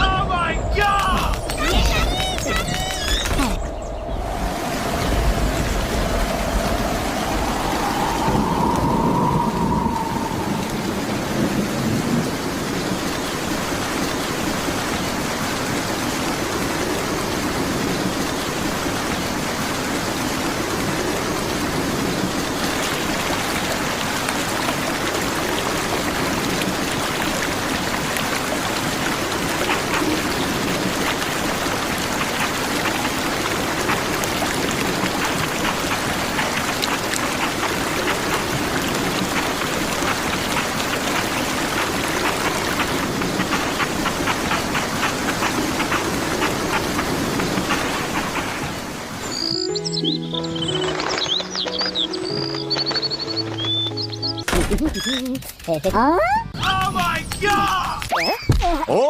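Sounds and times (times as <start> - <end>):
steady rain falling: 0.0 - 55.9, 56.6 - 59.0
fine raindrop ticks: 22.3 - 48.9.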